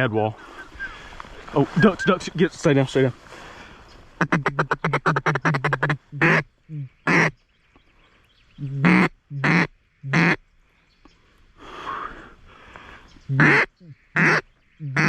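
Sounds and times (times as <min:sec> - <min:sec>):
duck call quacking: 0:04.2 - 0:06.5, 0:07.1 - 0:07.3, 0:08.8 - 0:10.4, 0:13.3 - 0:15.0.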